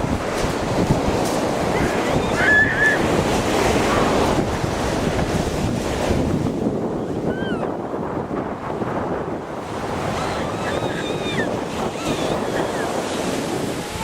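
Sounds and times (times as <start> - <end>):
ocean surf washing: 0.0 - 14.0
wind buffeting microphone: 0.0 - 14.0
wavering high-pitched call: 10.2 - 12.9.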